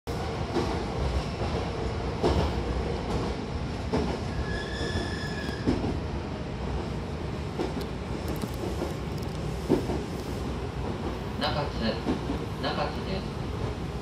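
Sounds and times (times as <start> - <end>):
train rumbling: 0.1 - 14.0
high squeal: 4.3 - 5.7.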